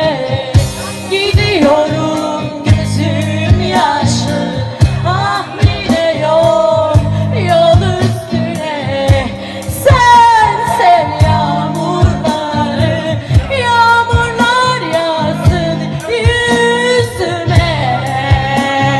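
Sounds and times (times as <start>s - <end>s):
bass and guitar: 0.0s - 18.9s
drum beats: 0.0s - 18.9s
women singing rock song: 0.0s - 18.9s.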